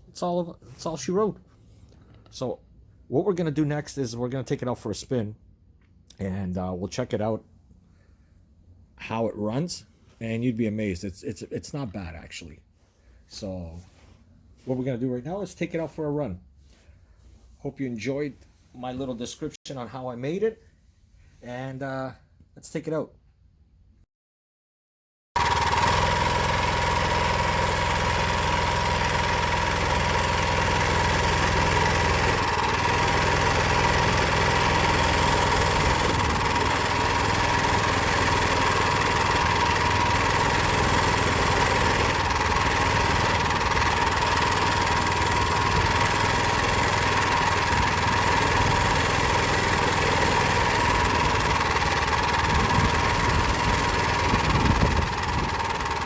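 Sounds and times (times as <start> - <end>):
small engine running: 25.4 - 56.0.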